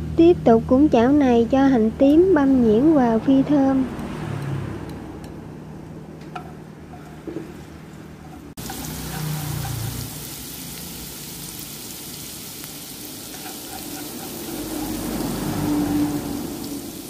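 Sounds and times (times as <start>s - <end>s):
shallots sizzling in oil: 8.6s - 17.0s.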